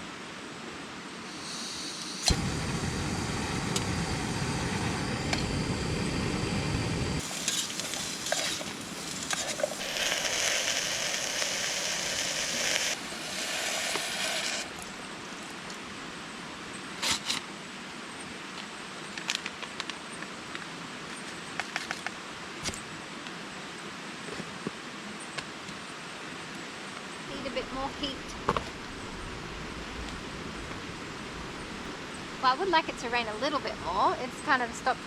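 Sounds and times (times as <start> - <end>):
low rumbling noise: 2.2 - 13.4
food sizzling in a pot: 7.1 - 14.8.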